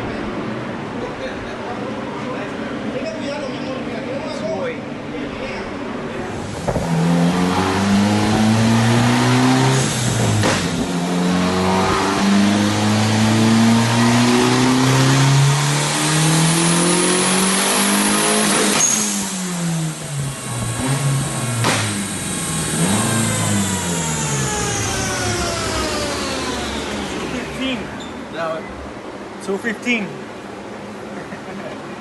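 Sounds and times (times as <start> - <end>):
car engine revving: 5.8 - 28.0.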